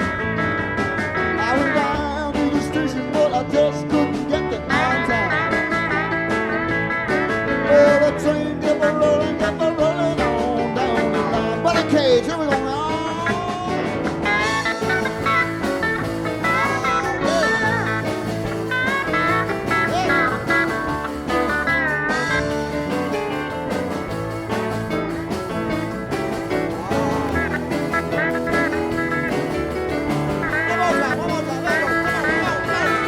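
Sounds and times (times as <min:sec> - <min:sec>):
blues-rock band playing: 0:00.0 - 0:33.0
sliding bending guitar notes: 0:00.0 - 0:33.0.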